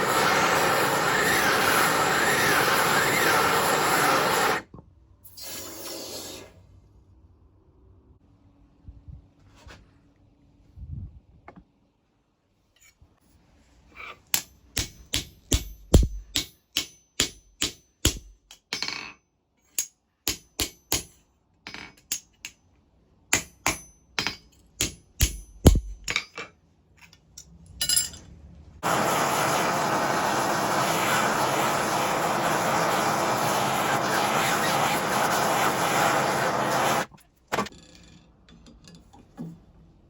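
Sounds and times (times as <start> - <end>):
loud steady rushing noise: 0.0 - 4.6, 28.8 - 37.1
hammer striking steel: 14.4 - 18.9, 23.3 - 26.3.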